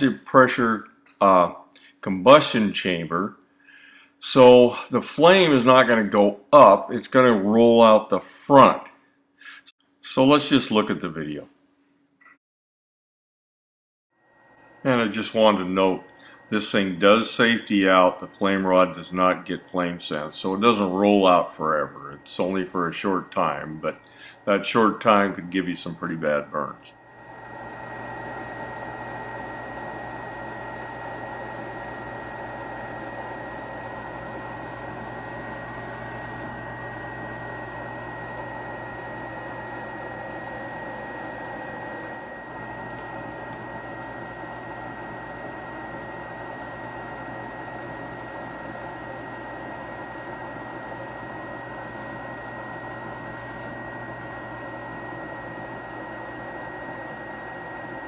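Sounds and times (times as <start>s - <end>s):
high steady whine: 14.6s - 58.0s
furnace flame rushing: 27.2s - 58.0s.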